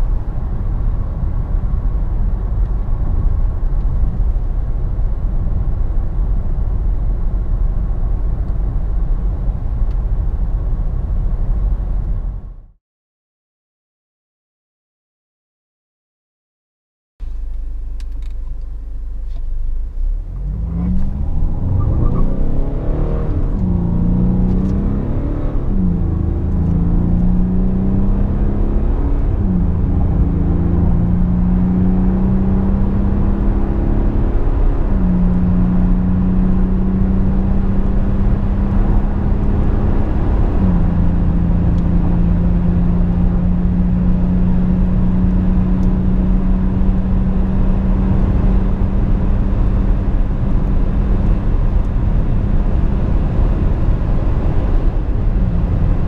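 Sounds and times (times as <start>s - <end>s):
road and wind noise: 0.0s - 12.8s, 17.2s - 56.0s
car engine accelerating: 17.2s - 56.0s.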